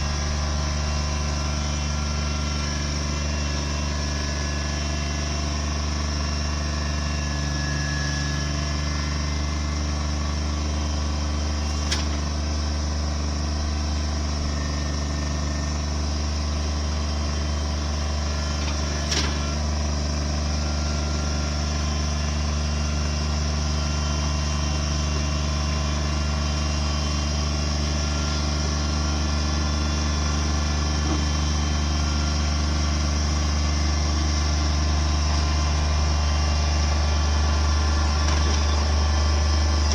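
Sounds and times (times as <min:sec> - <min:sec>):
machine engine droning: 0:00.0 - 0:39.9.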